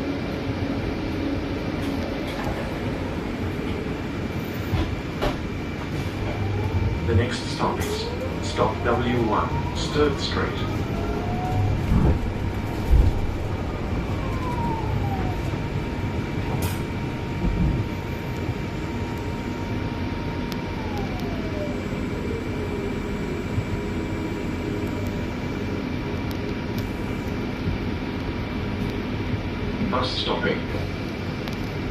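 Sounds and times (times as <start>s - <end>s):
drivetrain whine: 0.0s - 29.9s
bus engine and road rumble: 0.0s - 31.9s.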